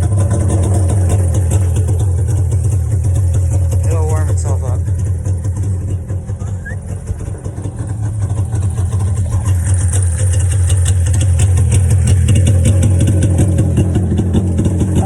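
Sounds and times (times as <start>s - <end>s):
engine idling low: 0.0s - 15.0s.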